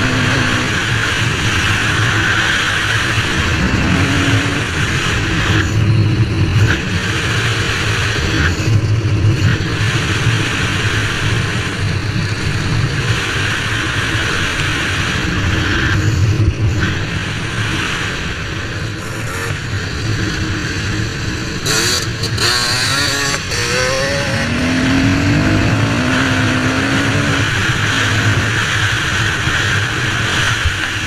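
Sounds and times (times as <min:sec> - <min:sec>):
dirt bike engine revving: 0:00.0 - 0:05.7, 0:18.9 - 0:29.4.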